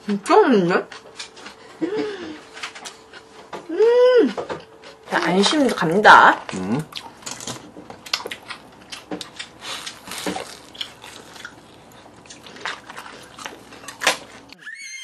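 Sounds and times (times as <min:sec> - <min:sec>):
crunchy bites and chewing: 0:06.5 - 0:14.6.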